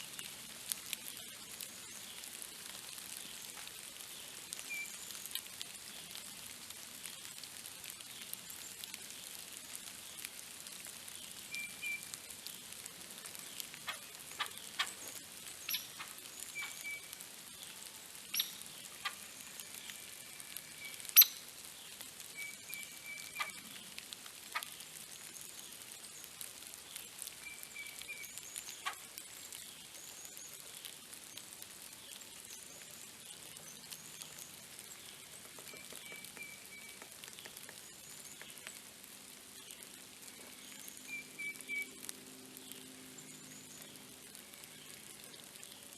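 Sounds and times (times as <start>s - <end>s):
faint steady hiss: 0.0s - 45.9s
small bird chirping: 0.1s - 6.2s, 7.1s - 45.9s
sharp taps and clicks: 35.4s - 38.7s.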